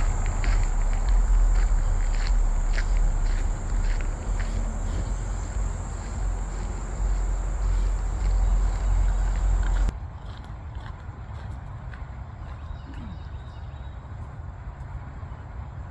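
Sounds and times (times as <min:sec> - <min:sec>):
insects trilling: 0:00.0 - 0:09.9
low rumble: 0:00.0 - 0:09.9
faint footsteps: 0:00.0 - 0:15.1.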